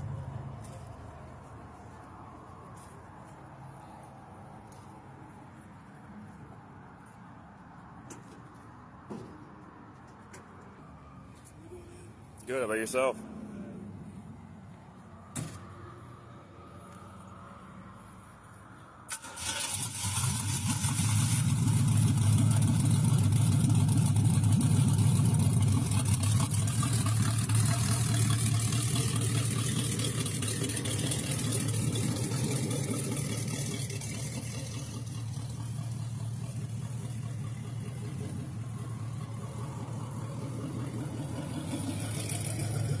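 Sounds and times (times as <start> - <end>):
car engine starting and idling: 19.0 - 43.0.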